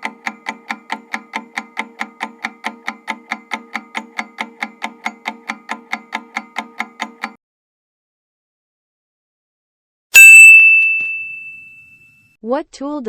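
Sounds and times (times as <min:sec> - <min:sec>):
clock-like ticking: 0:00.0 - 0:07.4.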